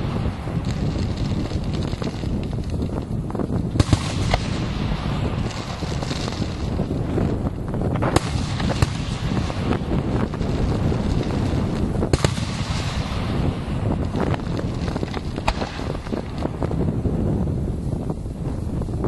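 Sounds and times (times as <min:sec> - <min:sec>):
fireworks cracks and bangs: 0:00.0 - 0:17.6
fireworks shells bursting rumble: 0:00.0 - 0:18.2.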